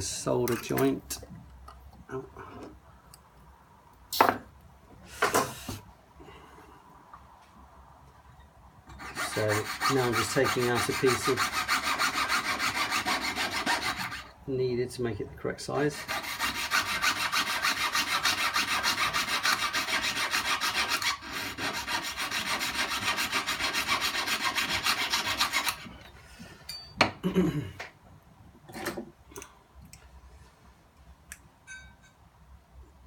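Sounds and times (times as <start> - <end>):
saw cutting metal ring: 8.9 - 14.3, 16.0 - 25.9.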